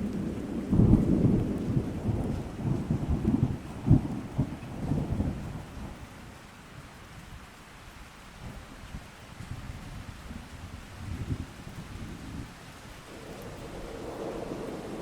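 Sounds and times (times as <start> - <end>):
thunder rumbling: 0.0 - 5.7, 13.1 - 15.0
steady rain: 0.0 - 15.0.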